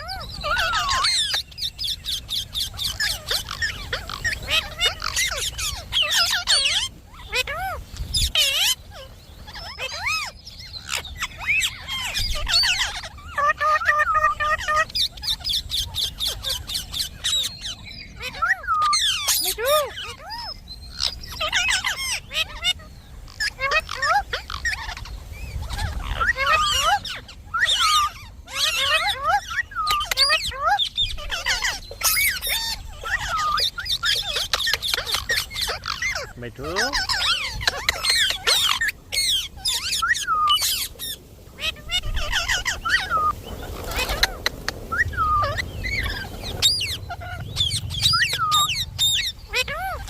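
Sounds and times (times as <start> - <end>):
parrot squawking and chattering: 0.0 - 50.0.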